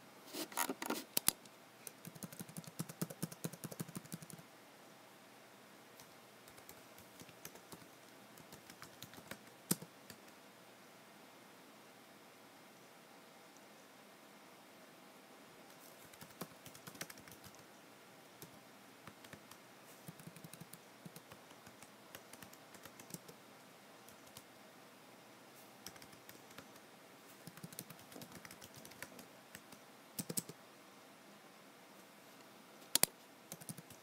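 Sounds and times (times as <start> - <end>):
typing on computer keyboard: 0.6 - 4.4, 6.0 - 10.4, 16.0 - 17.6, 18.4 - 23.4, 24.1 - 24.4, 25.8 - 26.8, 27.4 - 30.6, 33.0 - 34.0.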